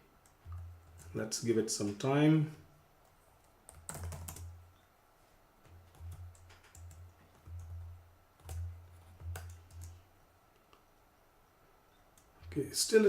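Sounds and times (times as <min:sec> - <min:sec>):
computer keyboard typing: 0:03.0 - 0:04.6, 0:05.8 - 0:10.0.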